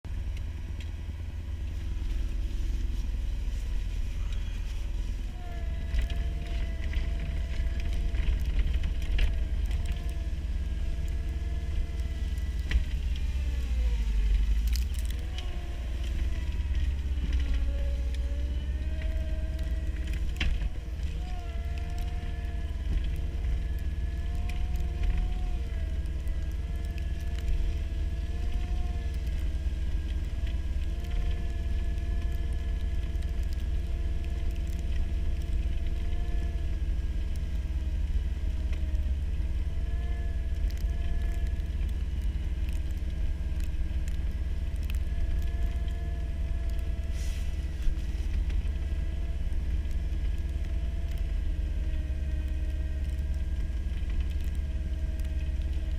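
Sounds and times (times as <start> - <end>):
skid loader diesel engine rumbling: 0.0 - 55.9.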